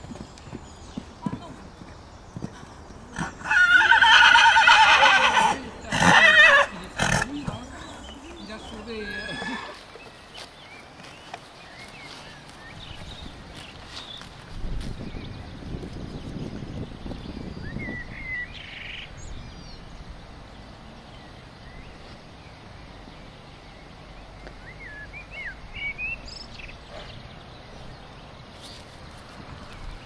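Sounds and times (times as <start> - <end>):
small birds twittering: 0.0 - 30.0.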